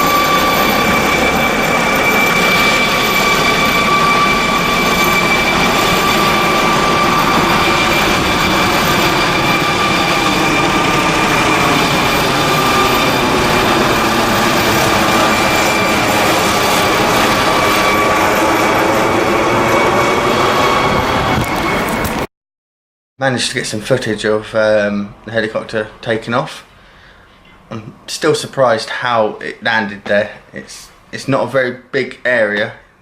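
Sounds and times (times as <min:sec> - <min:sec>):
helicopter engine and rotor: 0:00.0 - 0:22.3
high turbine whine: 0:00.0 - 0:22.3.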